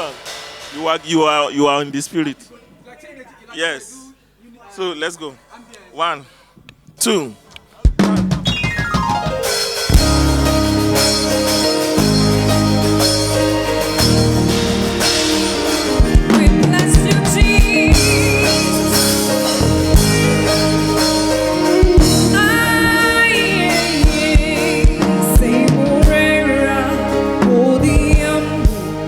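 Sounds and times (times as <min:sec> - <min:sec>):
gospel band playing: 0:00.0 - 0:02.8, 0:07.9 - 0:29.0
kick drum beats: 0:07.9 - 0:10.4, 0:15.9 - 0:18.3
voices singing with vibrato: 0:10.1 - 0:29.0.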